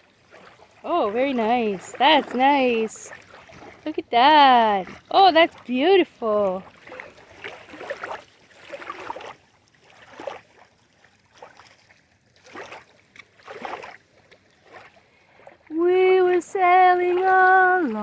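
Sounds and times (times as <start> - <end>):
waves lapping at shore: 0.0 - 18.0.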